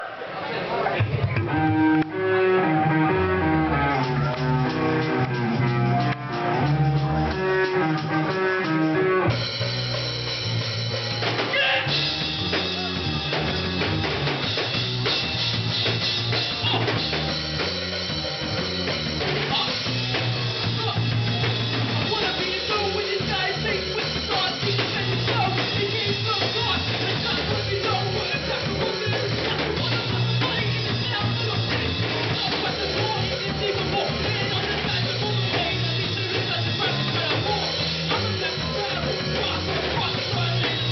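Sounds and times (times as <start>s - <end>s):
rock band playing: 0.9s - 40.9s.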